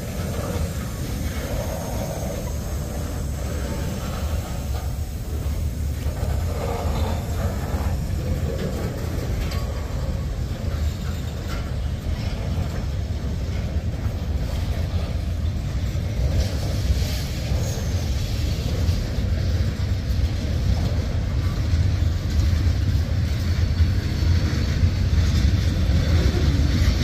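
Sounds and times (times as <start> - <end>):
freight train rumbling past: 0.0 - 27.0.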